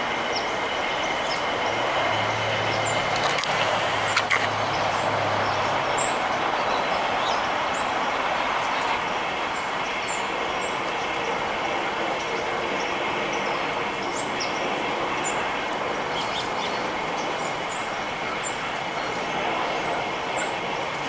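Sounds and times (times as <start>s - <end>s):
small birds chirping: 1.1s - 9.0s.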